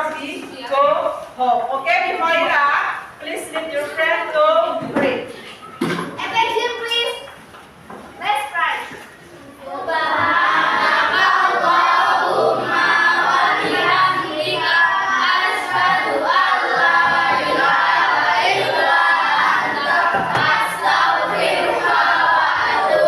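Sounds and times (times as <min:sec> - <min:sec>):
children chanting in unison: 0:09.6 - 0:23.0.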